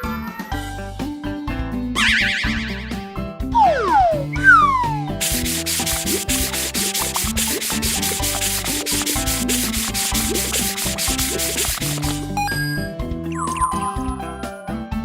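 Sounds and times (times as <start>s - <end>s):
background music: 0.0s - 15.0s
falling cartoon whistle: 2.0s - 2.9s
rhythmic scrubbing: 5.2s - 12.2s.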